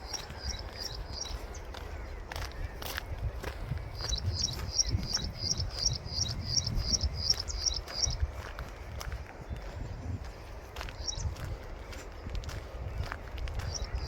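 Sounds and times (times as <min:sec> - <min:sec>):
bird chirping: 0:00.0 - 0:08.2, 0:11.0 - 0:11.4, 0:13.6 - 0:14.0.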